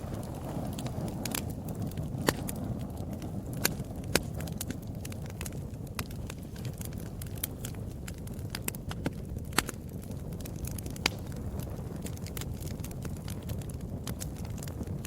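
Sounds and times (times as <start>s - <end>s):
fire crackling and popping: 0.0s - 15.0s
low rush of flames: 0.0s - 15.0s.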